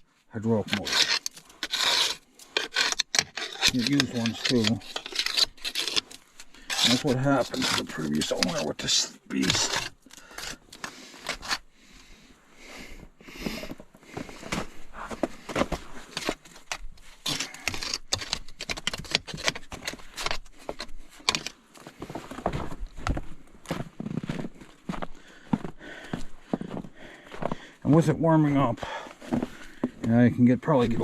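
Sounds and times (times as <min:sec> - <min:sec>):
scraping and knocking mud: 0:00.5 - 0:11.6, 0:14.5 - 0:21.6.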